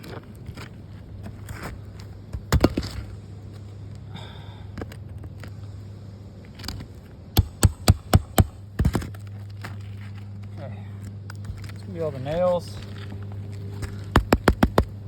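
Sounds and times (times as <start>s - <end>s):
steady low hum: 0.0s - 15.0s
sharp taps on roof shingles: 7.4s - 9.2s, 13.8s - 15.0s.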